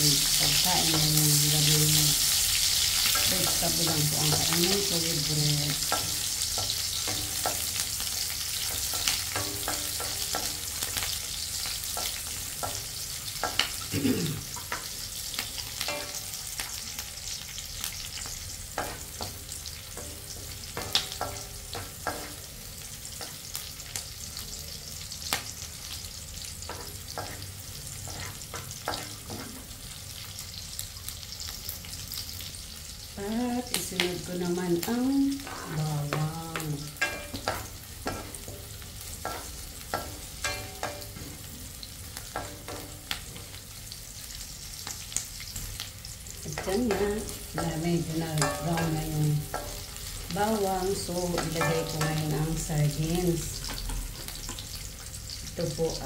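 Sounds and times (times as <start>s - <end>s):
onion sizzling in hot oil: 0.0s - 56.0s
wooden spatula scraping a wok: 26.7s - 29.8s.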